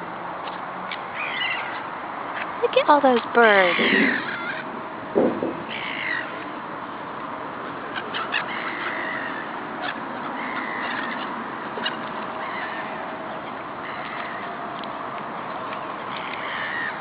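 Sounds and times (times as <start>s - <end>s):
flock of birds chattering: 0.4s - 17.0s
harsh bird call: 3.5s - 4.7s, 5.5s - 6.4s, 16.1s - 17.0s.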